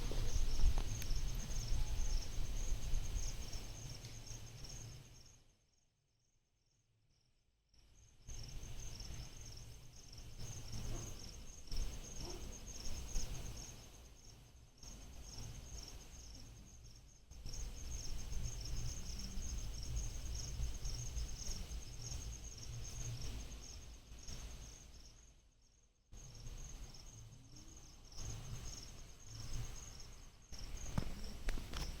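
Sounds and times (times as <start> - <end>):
wind buffeting microphone: 0.0 - 3.7
crickets chirring: 0.0 - 32.0.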